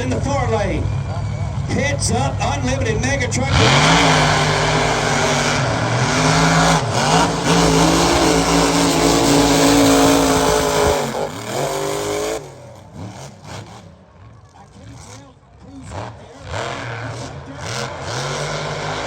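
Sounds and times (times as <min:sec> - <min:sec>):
truck engine at full throttle: 0:00.0 - 0:19.0.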